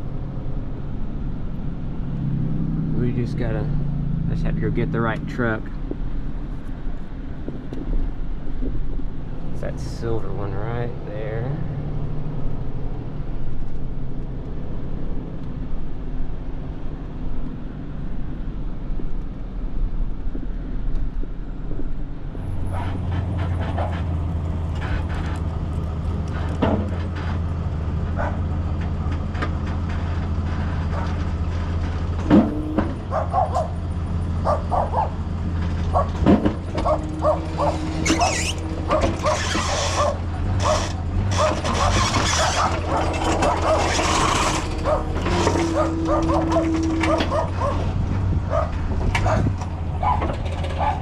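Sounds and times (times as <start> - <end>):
truck engine humming: 0.0 - 51.0
dog barking: 28.2 - 28.4, 33.0 - 33.8, 34.4 - 35.2, 35.9 - 36.2, 36.8 - 47.9, 48.5 - 51.0.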